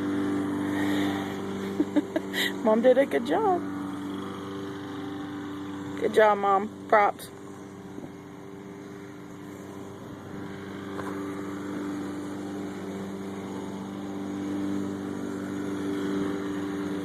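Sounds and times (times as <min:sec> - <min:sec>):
lawnmower engine running: 0:00.0 - 0:17.0.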